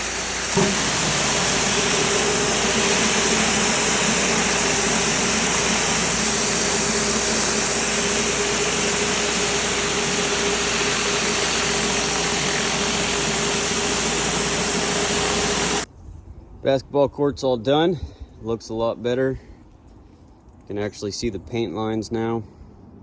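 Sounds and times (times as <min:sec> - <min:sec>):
pressure washer engine hum: 0:00.0 - 0:15.9
water spraying onto concrete: 0:00.0 - 0:15.9.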